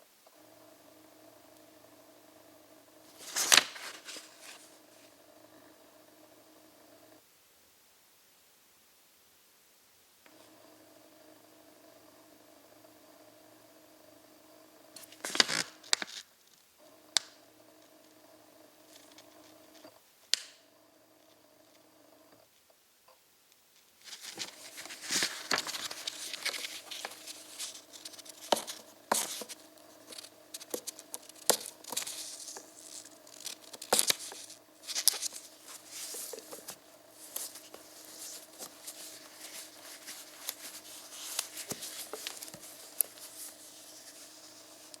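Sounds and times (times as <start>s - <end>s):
faint steady hum: 0.0s - 45.0s
crinkling and tearing: 3.2s - 4.6s, 15.0s - 16.2s, 24.0s - 45.0s.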